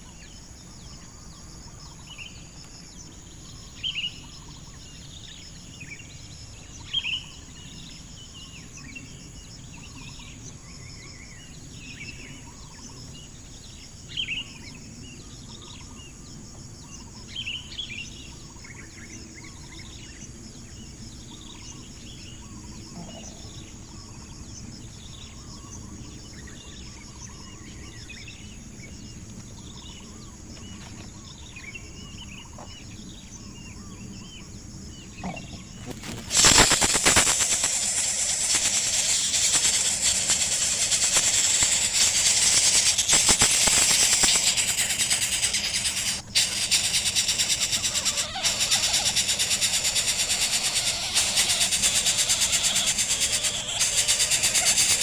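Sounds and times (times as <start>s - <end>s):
insects humming: 0.0s - 55.0s
chicks' sharp begging calls: 35.2s - 55.0s.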